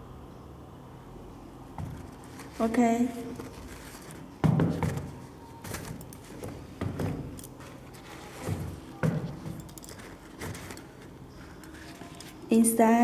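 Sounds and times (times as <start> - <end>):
dull knocks of sneaker handling: 4.4 - 7.4.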